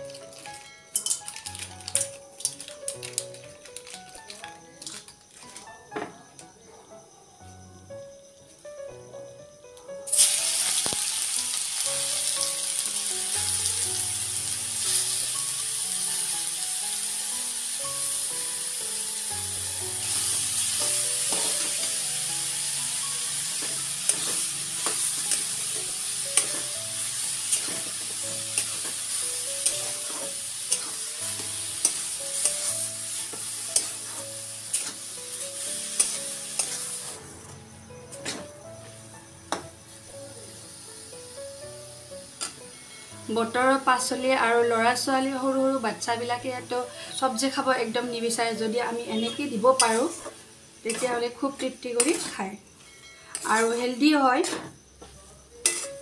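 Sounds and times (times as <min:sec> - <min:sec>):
soft background music: 0:00.0 - 0:56.0
carrots sizzling in a pan: 0:10.1 - 0:37.4, 0:38.3 - 0:54.6, 0:55.6 - 0:56.0
metal spatula scraping a pan: 0:20.9 - 0:21.8, 0:23.7 - 0:26.7, 0:27.3 - 0:35.1, 0:49.2 - 0:51.2, 0:53.3 - 0:54.7, 0:55.6 - 0:56.0.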